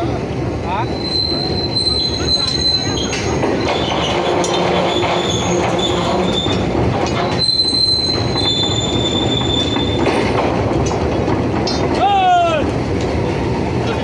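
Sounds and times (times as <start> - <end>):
train rumbling past: 0.0 - 14.0
high-pitched wheel squeal: 0.7 - 10.2.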